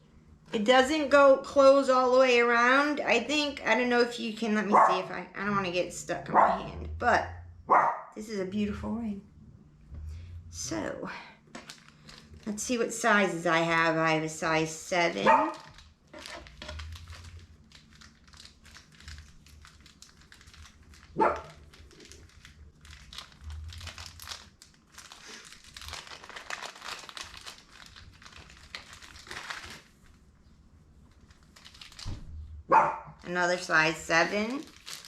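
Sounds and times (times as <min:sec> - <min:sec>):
plastic packaging crinkling: 0:11.4 - 0:13.8, 0:15.2 - 0:32.5, 0:33.2 - 0:35.0.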